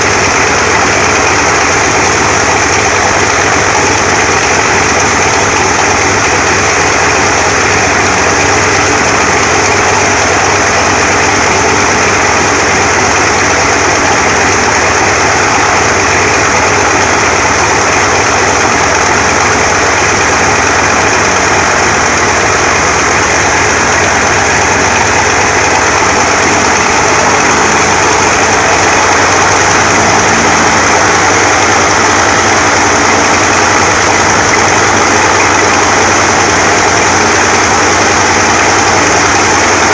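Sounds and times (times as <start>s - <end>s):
radial piston engine running: 0.0s - 39.9s.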